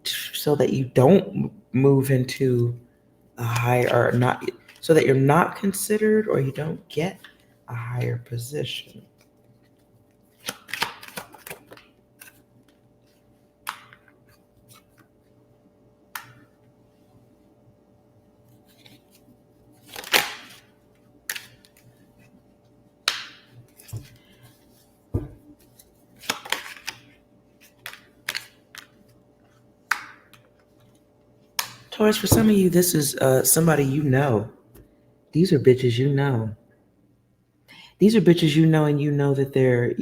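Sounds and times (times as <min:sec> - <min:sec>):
cards shuffling and snapping: 0:10.3 - 0:12.8, 0:13.6 - 0:15.1, 0:19.8 - 0:21.9, 0:23.0 - 0:24.5, 0:25.2 - 0:31.0.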